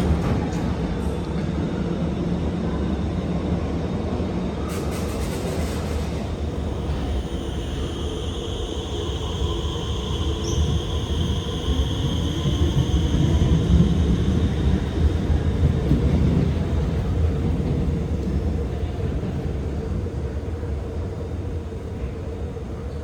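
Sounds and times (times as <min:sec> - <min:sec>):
high traction motor whine: 0:06.3 - 0:16.9.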